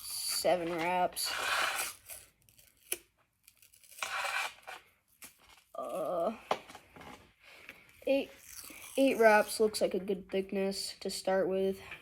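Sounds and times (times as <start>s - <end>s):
tape ripping off a roll: 0.7s - 6.0s, 8.3s - 9.5s.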